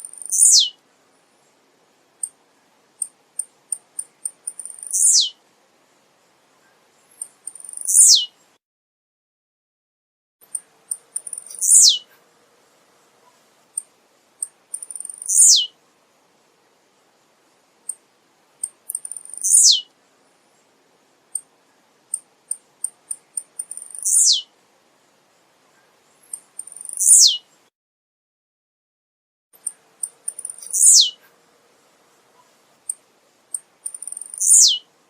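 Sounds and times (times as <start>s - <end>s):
grassquit singing high ticks: 0.0s - 0.8s, 2.1s - 5.4s, 6.7s - 8.4s, 10.4s - 12.2s, 13.6s - 15.8s, 17.8s - 20.0s, 20.6s - 27.6s, 29.6s - 31.4s, 32.1s - 34.9s.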